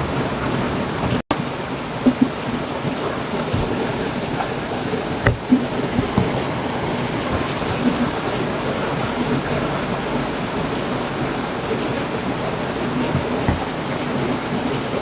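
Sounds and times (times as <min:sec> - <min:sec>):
heavy rain falling: 0:00.0 - 0:15.0
drops striking a surface: 0:05.2 - 0:06.5.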